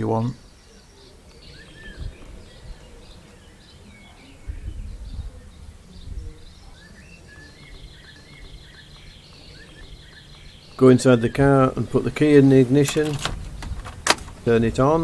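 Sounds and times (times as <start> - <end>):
birds chirping: 0.0 - 15.0
low rumbles: 4.4 - 15.0.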